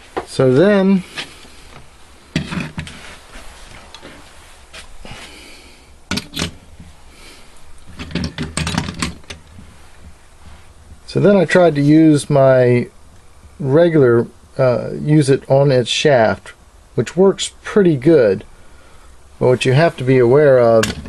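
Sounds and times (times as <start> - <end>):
clicks of handling parts: 6.1 - 6.9, 7.8 - 10.2.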